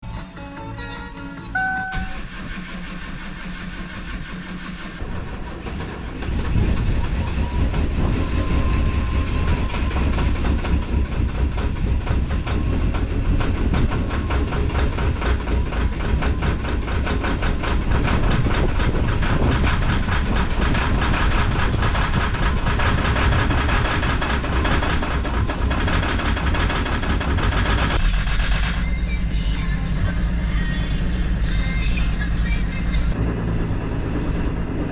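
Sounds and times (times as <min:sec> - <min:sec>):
diesel engine clattering idle: 0:00.3 - 0:34.9
diesel engine cranking and starting: 0:00.3 - 0:34.9
short electronic beeps: 0:01.5 - 0:02.2.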